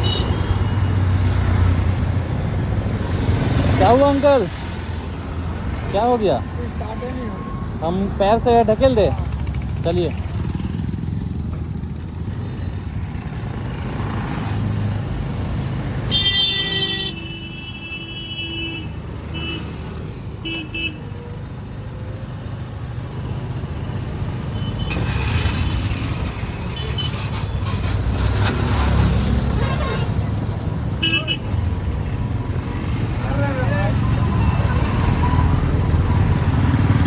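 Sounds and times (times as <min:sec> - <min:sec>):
road traffic: 0:00.0 - 0:37.0
vehicle horn blaring: 0:16.1 - 0:19.7, 0:29.5 - 0:30.2, 0:31.0 - 0:31.5.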